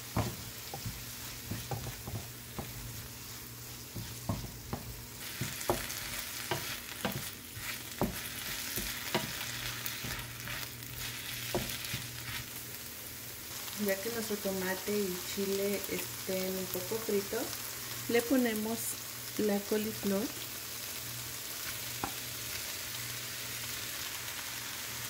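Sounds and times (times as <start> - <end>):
wooden spoon scraping a pan: 0.0 - 12.6
vegetables sizzling in oil: 0.0 - 25.0.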